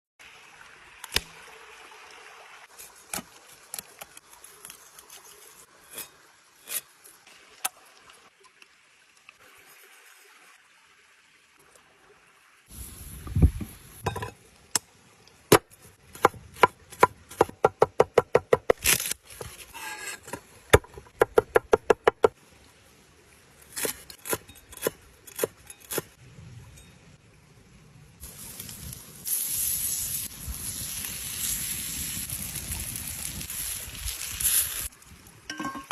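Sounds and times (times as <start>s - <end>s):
cooking utensils clinking: 35.5s - 35.9s.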